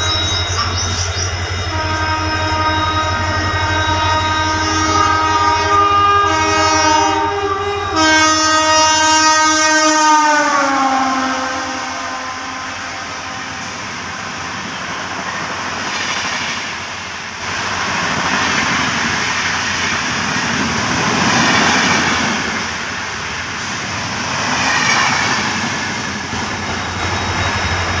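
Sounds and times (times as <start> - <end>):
train carriages rumbling and clattering: 0.0 - 5.9, 13.0 - 28.0
train horn: 1.6 - 14.3.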